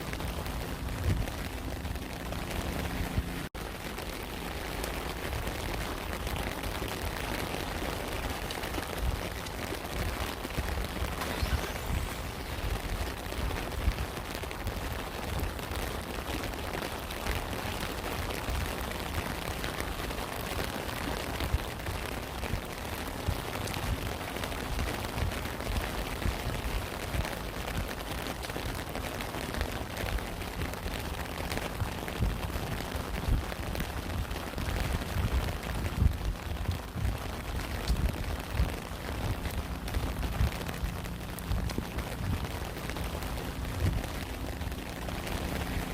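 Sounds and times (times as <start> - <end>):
low rumble: 0.0 - 16.3, 29.5 - 45.9
rain falling: 0.0 - 45.9.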